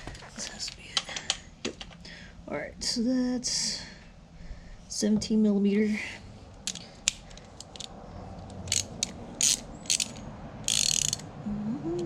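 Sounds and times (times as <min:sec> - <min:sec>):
ratchet wrench clicking: 0:06.6 - 0:11.3.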